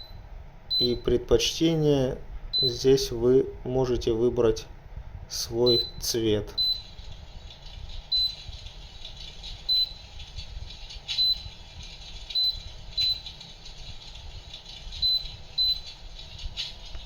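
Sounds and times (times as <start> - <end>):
short high beeps: 0.0 - 1.1, 5.7 - 7.0
low rattling noise: 6.8 - 17.0.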